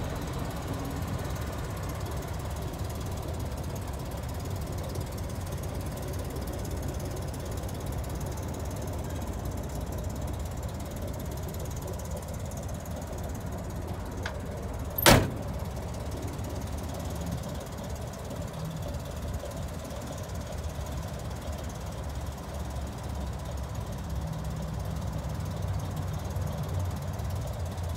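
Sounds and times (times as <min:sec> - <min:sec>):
van engine idling: 0:00.0 - 0:27.9
sharp bang: 0:15.0 - 0:15.6.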